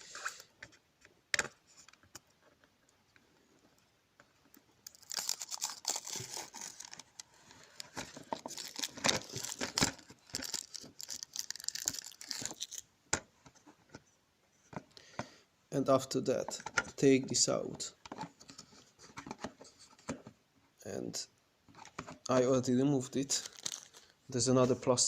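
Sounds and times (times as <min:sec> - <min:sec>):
plastic film peeling and crackling: 0:04.8 - 0:12.9, 0:23.2 - 0:24.1.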